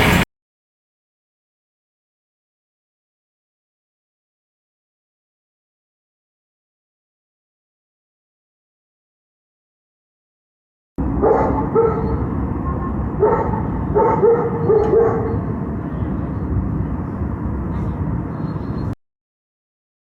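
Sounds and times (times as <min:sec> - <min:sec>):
dog barking: 0:11.1 - 0:12.3, 0:13.2 - 0:15.6
blizzard wind on microphone: 0:11.8 - 0:19.0.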